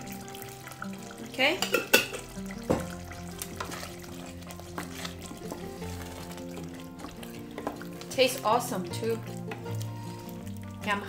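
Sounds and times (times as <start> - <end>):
mandolin background music: 0.0 - 11.0
wooden spoon stirring porridge: 2.2 - 11.0.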